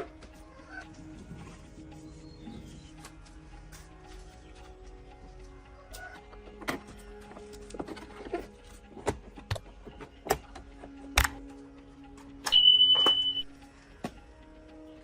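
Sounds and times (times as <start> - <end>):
high-pitched beep: 12.5 - 13.5.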